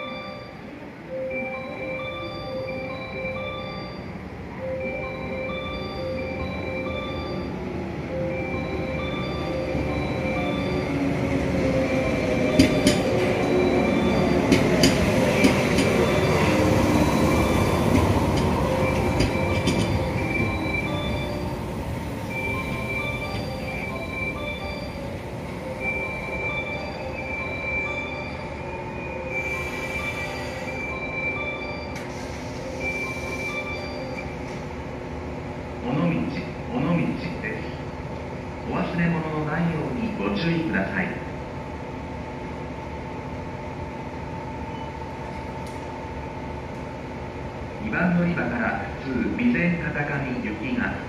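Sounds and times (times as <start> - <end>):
train wheels rumbling: 7.6 - 35.8
high wheel squeals: 26.2 - 34.5.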